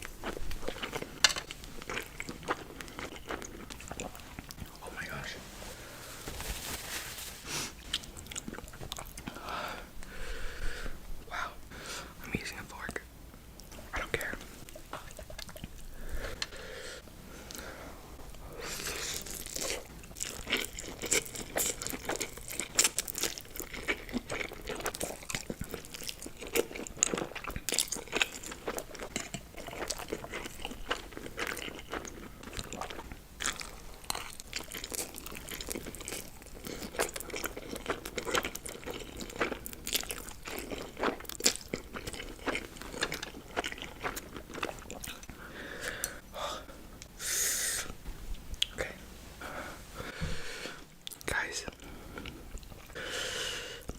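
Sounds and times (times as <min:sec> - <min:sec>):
crunchy crackles: 0:00.0 - 0:09.2
chewing and mouth clicks: 0:00.1 - 0:04.8, 0:13.6 - 0:16.4, 0:18.8 - 0:46.2.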